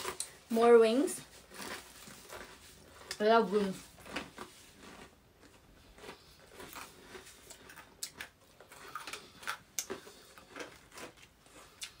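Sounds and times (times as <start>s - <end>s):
chewing and lip smacks: 4.1s - 12.0s.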